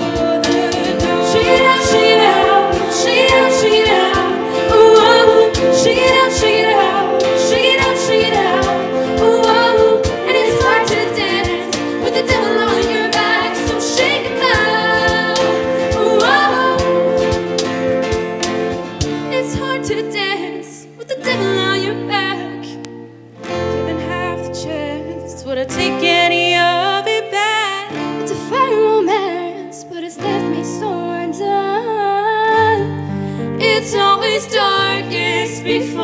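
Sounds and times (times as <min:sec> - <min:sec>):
instrumental accompaniment: 0:00.0 - 0:20.1
vocal ensemble singing: 0:00.0 - 0:22.8, 0:30.3 - 0:36.0.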